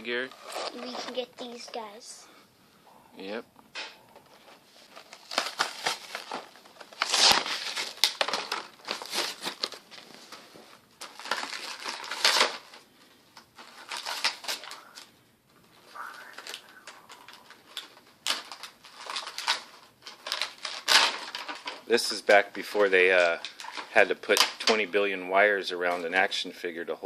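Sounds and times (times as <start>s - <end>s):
plastic packaging crinkling: 4.2s - 25.2s.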